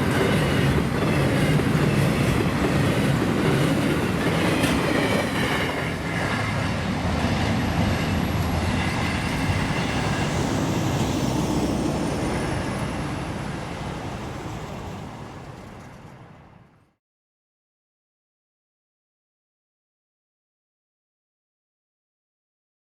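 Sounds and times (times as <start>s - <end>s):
freight train rumbling past: 0.0s - 16.9s.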